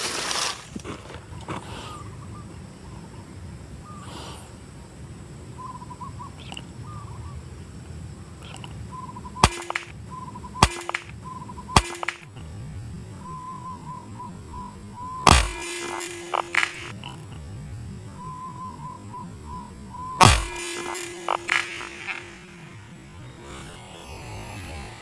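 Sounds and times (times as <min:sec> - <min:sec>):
birds calling: 0:05.5 - 0:07.5, 0:08.2 - 0:23.4
sharp cracks: 0:09.4 - 0:12.6, 0:14.5 - 0:17.2, 0:20.2 - 0:25.0.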